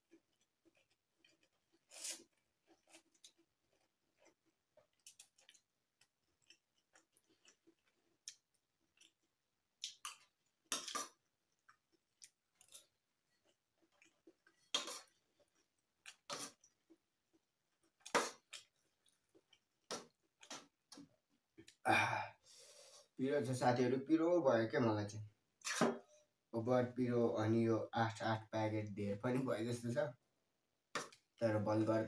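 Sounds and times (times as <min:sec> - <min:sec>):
wet chewing clicks: 0:00.0 - 0:21.8.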